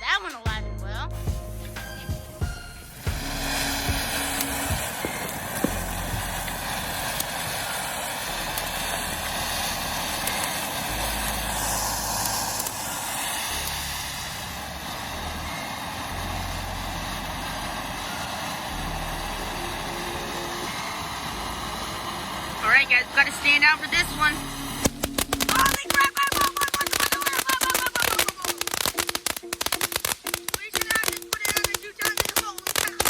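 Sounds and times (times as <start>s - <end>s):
firework crackles: 1.2s - 33.0s
firework fountain hissing: 1.2s - 33.0s.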